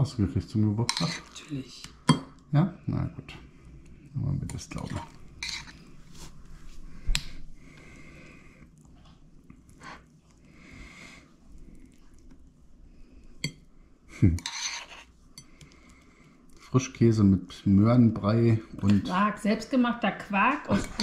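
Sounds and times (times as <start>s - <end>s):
soft scraping: 4.8s - 7.0s.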